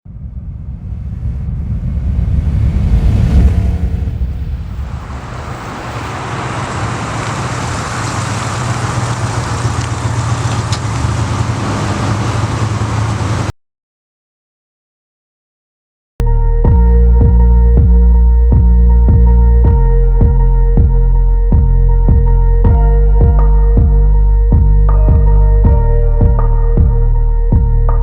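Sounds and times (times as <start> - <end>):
tyre and road noise: 0.1 - 13.5
pickup truck engine running: 4.1 - 13.5.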